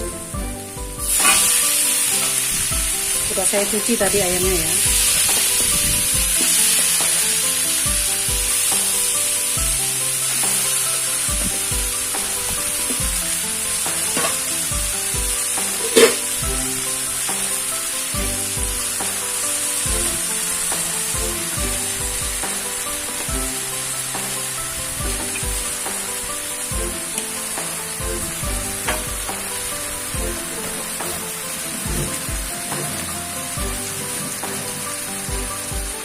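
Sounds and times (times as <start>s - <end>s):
soft music with steady beat: 0.0s - 36.0s
utensil knocking on pan: 1.0s - 1.6s, 15.1s - 16.6s, 27.6s - 29.5s
chicken sizzling in a pan: 1.0s - 35.7s.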